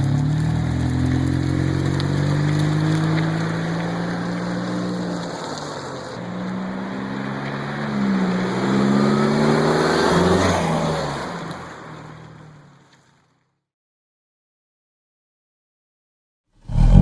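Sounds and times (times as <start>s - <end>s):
car engine revving: 0.0s - 11.0s, 16.7s - 17.0s.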